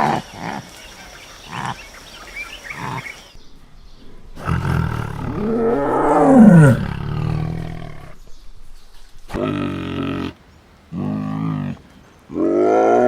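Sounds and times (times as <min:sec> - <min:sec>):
large animal roaring: 0:04.0 - 0:13.0.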